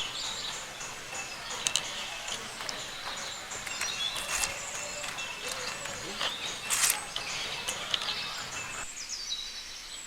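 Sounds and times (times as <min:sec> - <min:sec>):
birds chirping: 0:00.0 - 0:10.0
sharp clicks: 0:01.6 - 0:08.2.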